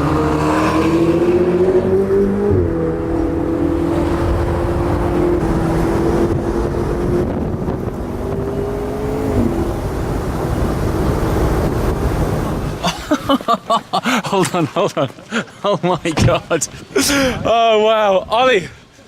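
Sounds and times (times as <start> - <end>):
car engine running hard: 0.0 - 13.0
road and wind noise: 0.0 - 19.0.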